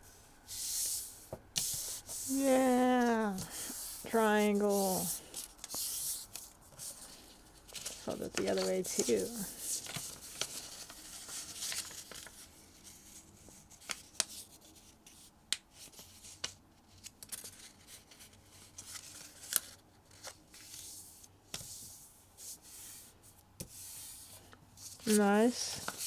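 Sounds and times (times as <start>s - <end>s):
paper rubbing and rustling: 0.5s - 21.0s, 23.7s - 26.0s
paper crinkling clicks: 7.7s - 12.4s.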